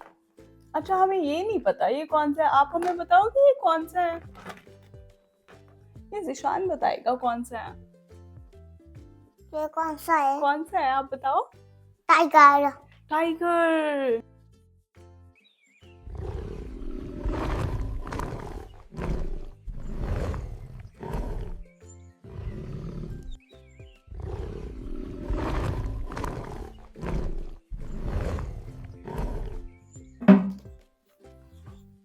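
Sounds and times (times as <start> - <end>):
tiger growling: 16.0 - 23.4, 24.0 - 29.8.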